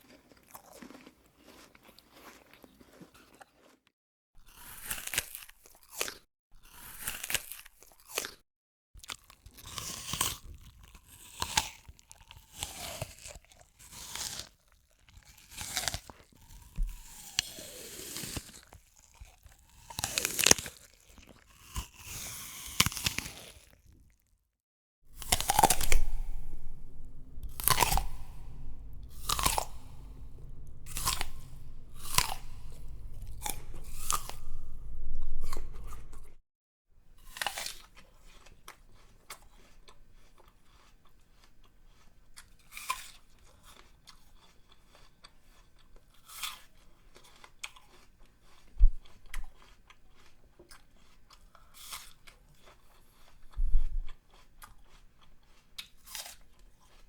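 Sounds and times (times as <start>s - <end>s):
crunchy food being chewed: 0.0s - 8.4s, 9.0s - 24.2s, 25.1s - 36.4s, 37.2s - 57.0s
low rumble: 25.1s - 36.4s.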